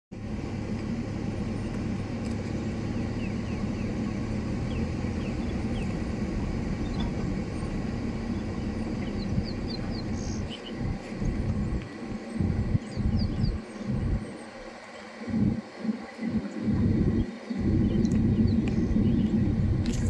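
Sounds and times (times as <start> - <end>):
vehicle engine idling: 0.1 - 20.0
faint bird chirps: 6.8 - 15.4.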